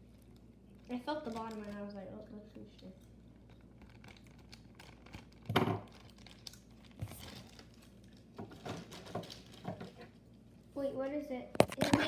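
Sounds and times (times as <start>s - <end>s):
plastic toy bag crinkling: 0.9s - 1.9s, 2.7s - 10.1s.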